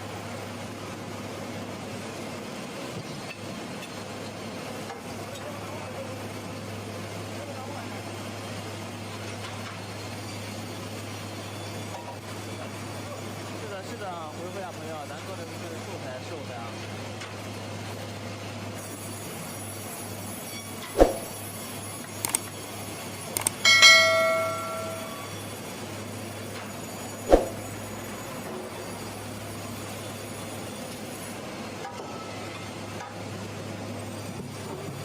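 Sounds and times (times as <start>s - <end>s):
ringing metallic clang: 23.6s - 25.4s.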